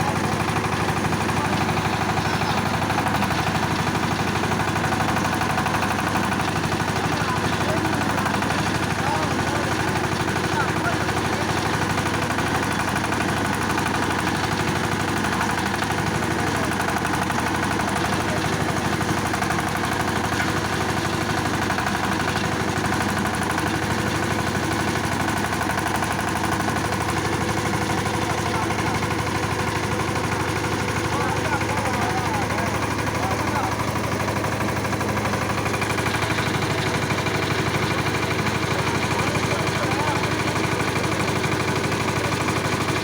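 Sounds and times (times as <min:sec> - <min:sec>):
diesel engine running: 0:00.0 - 0:43.0.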